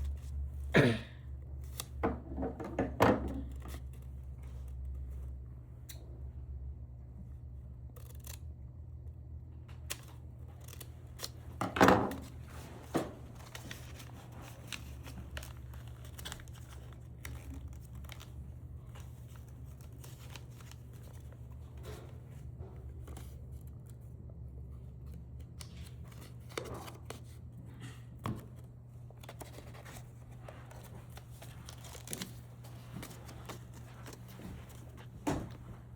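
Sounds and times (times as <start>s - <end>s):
clicks and rustling handling: 28.2s - 35.8s.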